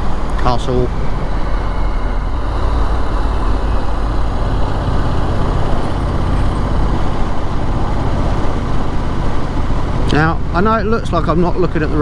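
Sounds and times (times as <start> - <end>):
wind noise: 0.0 - 11.1
road noise: 0.0 - 12.0
motorcycle engine running: 1.4 - 10.9.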